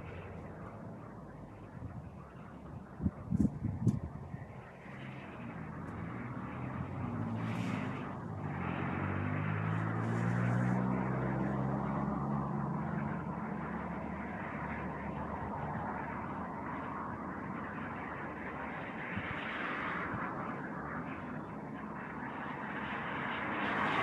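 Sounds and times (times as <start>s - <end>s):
vehicle engine passing by: 0.0s - 16.2s.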